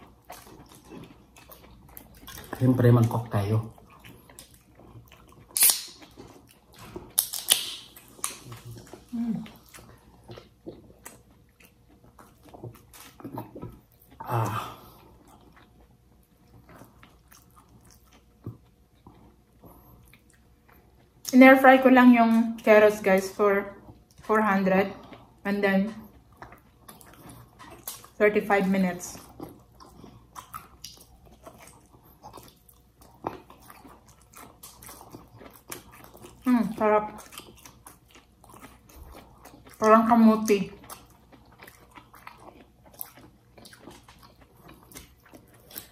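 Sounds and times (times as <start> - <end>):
people chewing with lip smacks: 0.0 - 45.9.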